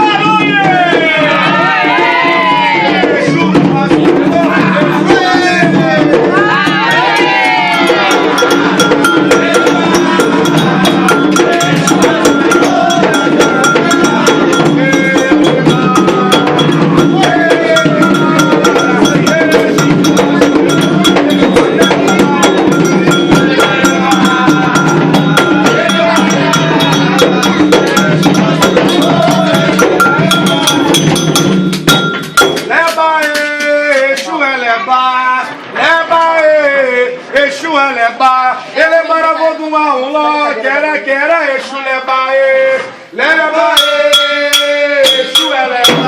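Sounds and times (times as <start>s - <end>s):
hand drums drumming: 0.0s - 34.3s, 43.8s - 46.0s
voices singing: 0.0s - 46.0s
fast bell pattern: 3.5s - 33.0s, 43.7s - 46.0s.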